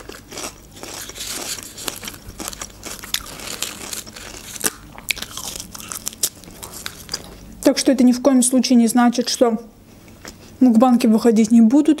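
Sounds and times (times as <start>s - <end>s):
chewing crisp radish: 0.0s - 7.7s.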